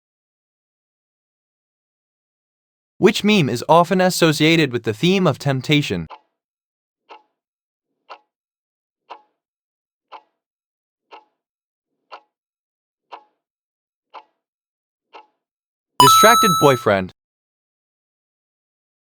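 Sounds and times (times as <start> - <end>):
countdown timer ticking: 16.0 - 17.1.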